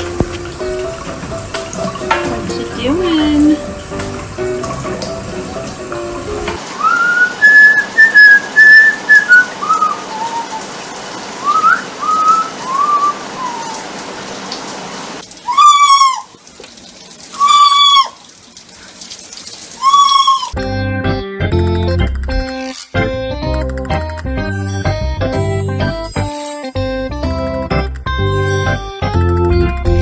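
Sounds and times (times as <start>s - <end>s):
parrot whistling: 6.8s - 10.7s, 11.4s - 13.9s, 15.5s - 16.3s, 17.4s - 18.2s, 19.8s - 20.6s
parrot calls: 11.5s - 14.0s, 15.4s - 16.4s, 17.3s - 18.2s, 19.8s - 20.6s.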